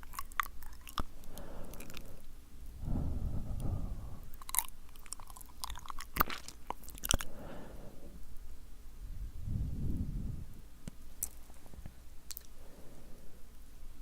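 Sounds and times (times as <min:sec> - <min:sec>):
breathy blowing into microphone: 0:02.8 - 0:04.4, 0:09.1 - 0:10.6
wet lip smacks: 0:04.3 - 0:07.3, 0:12.3 - 0:12.6
tongue clicks: 0:12.3 - 0:12.6.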